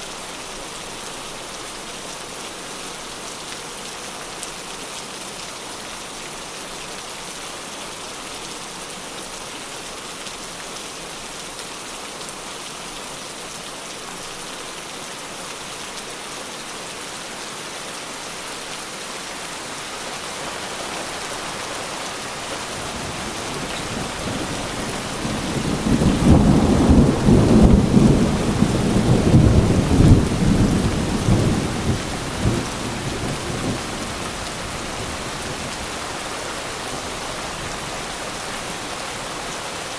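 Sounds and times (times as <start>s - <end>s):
steady rain: 0.0s - 39.9s
rolling thunder: 23.1s - 34.2s.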